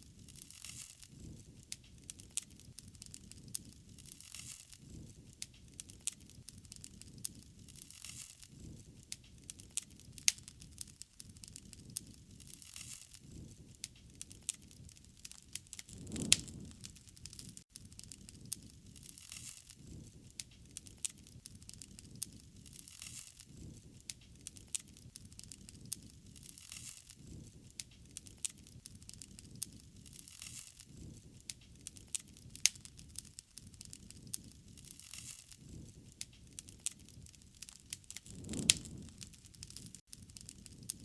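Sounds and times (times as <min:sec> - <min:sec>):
wood fire crackling: 0:00.1 - 0:41.0
low fire rumble: 0:13.2 - 0:19.2, 0:23.5 - 0:26.6, 0:35.6 - 0:41.0.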